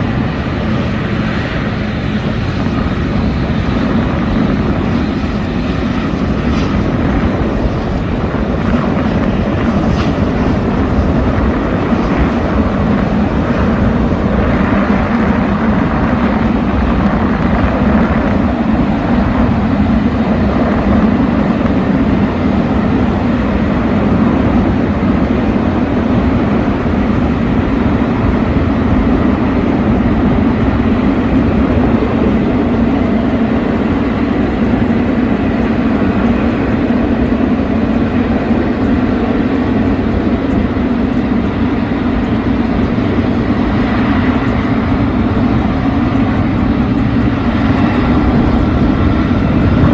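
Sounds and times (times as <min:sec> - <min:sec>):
loud engine drone: 0:00.0 - 0:49.9.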